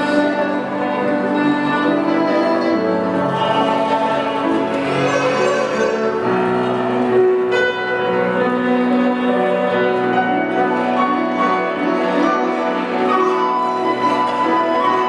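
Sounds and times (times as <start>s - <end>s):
piano accompaniment: 0.0s - 15.0s
zither accompaniment: 0.0s - 15.0s
bamboo flute melody: 10.7s - 15.0s.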